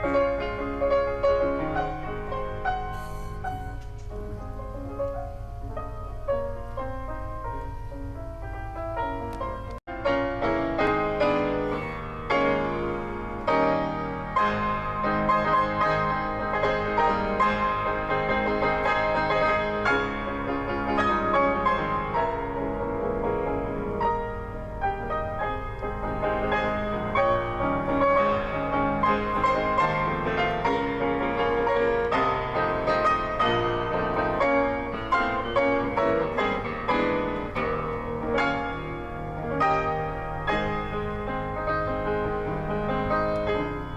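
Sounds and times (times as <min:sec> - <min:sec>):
steady low hum: 0:00.0 - 0:10.4
piano music: 0:00.0 - 0:43.9.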